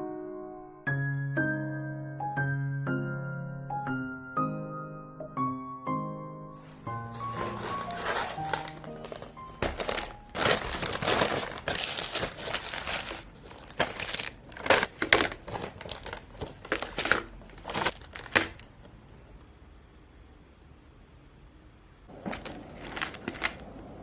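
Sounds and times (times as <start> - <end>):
packaging crinkling: 6.6 - 19.0, 22.1 - 23.8.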